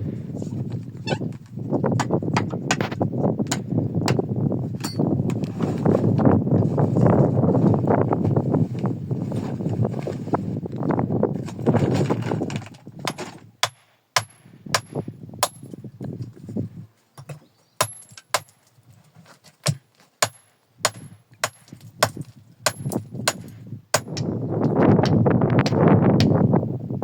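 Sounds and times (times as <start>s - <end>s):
scraping and rustling: 5.3s - 13.5s, 18.6s - 20.2s.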